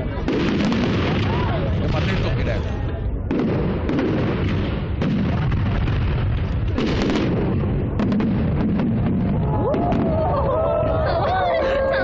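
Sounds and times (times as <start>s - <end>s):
fireworks cracking and popping: 0.0s - 11.3s.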